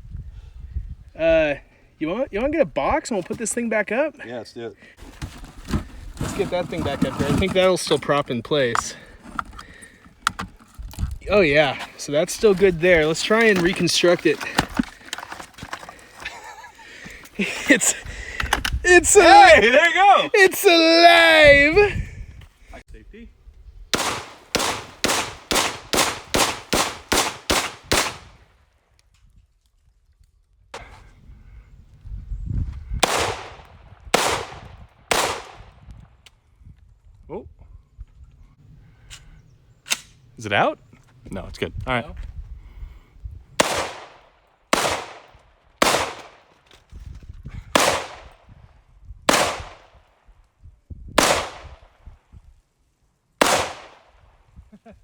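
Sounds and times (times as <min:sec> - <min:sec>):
rapid gunshots: 0:24.0 - 0:28.3, 0:33.0 - 0:33.6, 0:34.2 - 0:35.6, 0:43.6 - 0:44.2, 0:44.8 - 0:45.2, 0:45.8 - 0:46.4, 0:47.8 - 0:48.3, 0:53.4 - 0:54.0.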